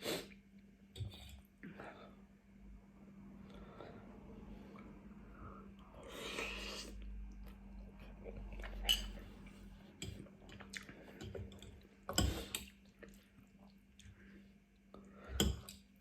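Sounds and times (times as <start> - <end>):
person chewing food: 6.3 - 15.2.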